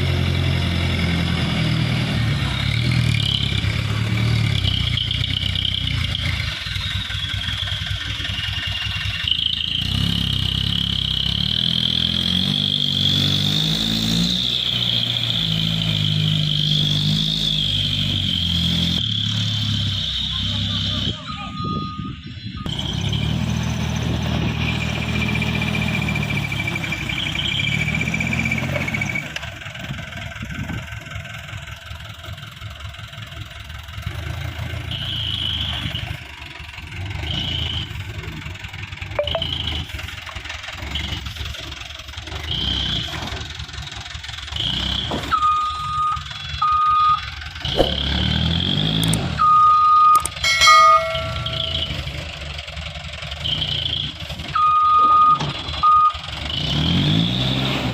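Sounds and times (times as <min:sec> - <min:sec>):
truck diesel engine running: 0:00.0 - 0:57.9
short high beeps: 0:21.2 - 0:22.7, 0:39.2 - 0:39.8, 0:49.4 - 0:52.2.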